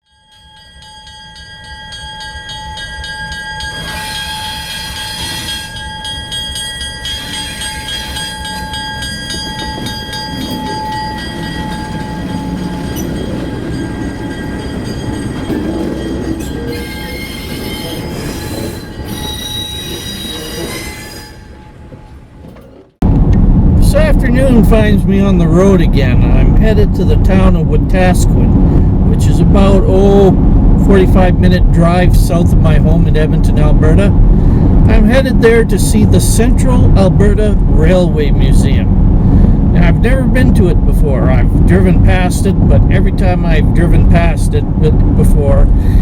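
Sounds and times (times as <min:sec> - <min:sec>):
train rumbling along track: 0:00.8 - 0:46.0
wheels squealing on rails: 0:03.3 - 0:22.9.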